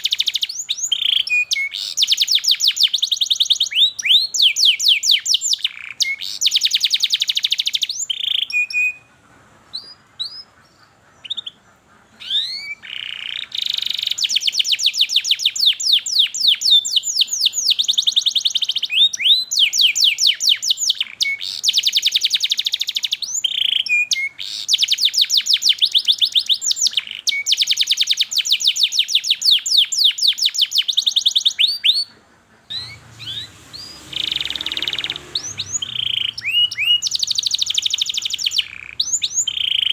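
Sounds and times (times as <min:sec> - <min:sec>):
canary singing trills: 0:00.0 - 0:39.9
low hum: 0:32.6 - 0:37.8.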